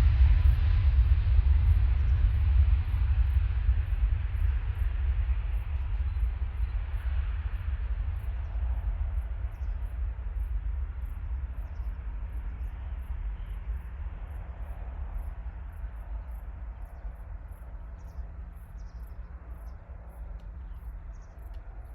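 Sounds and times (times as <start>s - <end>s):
jet engines rumbling: 0.0s - 21.9s
crickets chirping: 2.0s - 21.9s.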